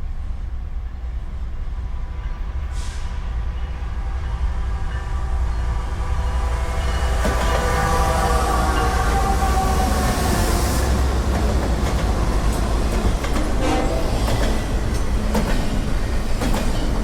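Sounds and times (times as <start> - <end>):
freight train rumble: 0.0 - 17.0
brief hiss: 2.7 - 3.3.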